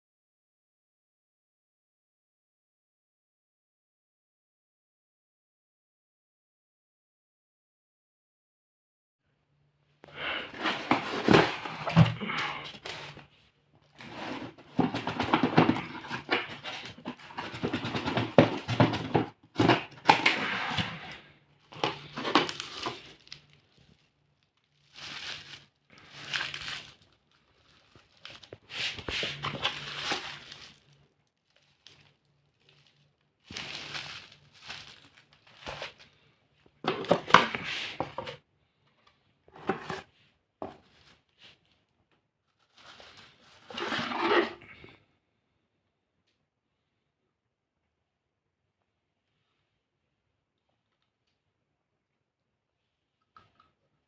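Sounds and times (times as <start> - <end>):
rustling and crinkling: 10.1 - 44.9.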